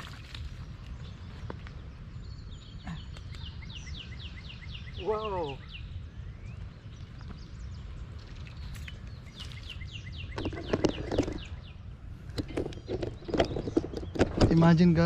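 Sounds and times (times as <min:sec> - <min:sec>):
songbird chirping: 0:00.0 - 0:15.0
steady low rumble: 0:00.0 - 0:15.0
knocking and rustling: 0:12.3 - 0:14.8.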